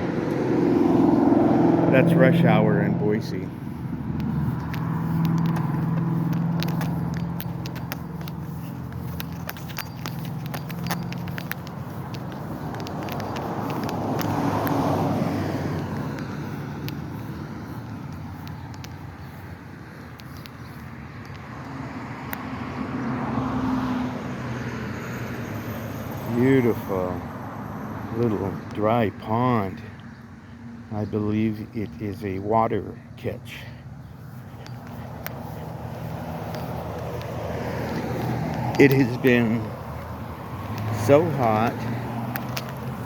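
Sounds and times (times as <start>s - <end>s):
car driving past: 0.0s - 9.2s, 12.4s - 17.8s
car passing: 0.0s - 30.9s, 32.6s - 43.0s
small clicks and crackles: 4.1s - 22.4s, 34.3s - 40.1s, 40.7s - 43.0s.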